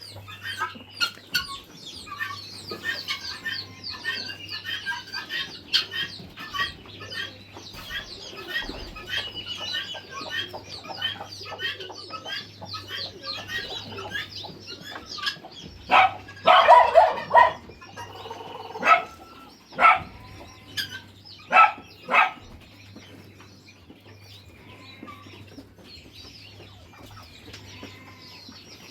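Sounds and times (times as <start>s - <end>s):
chickens clucking: 0.0s - 28.9s
chickens squawking: 0.0s - 28.9s.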